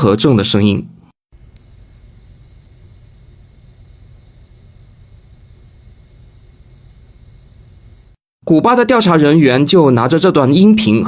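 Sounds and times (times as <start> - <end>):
high-pitched shrill cricket drone: 1.6 - 8.2.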